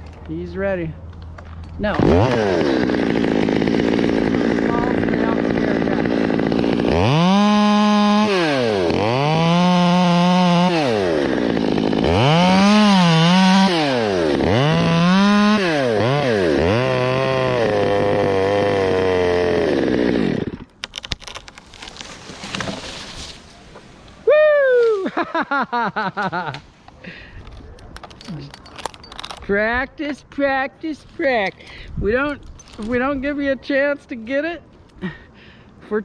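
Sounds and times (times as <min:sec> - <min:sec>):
chainsaw revving and cutting wood: 0:01.8 - 0:22.9.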